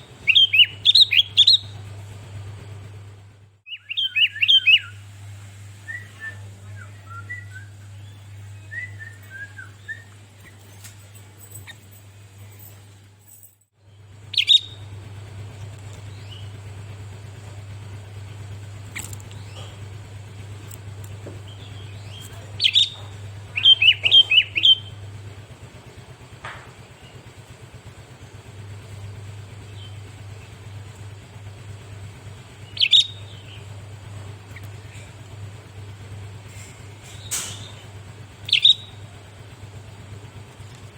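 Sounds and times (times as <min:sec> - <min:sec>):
bird chirping calls: 0:00.0 - 0:02.9, 0:03.7 - 0:05.0, 0:05.9 - 0:12.8, 0:14.0 - 0:40.9
low hum: 0:00.0 - 0:40.9.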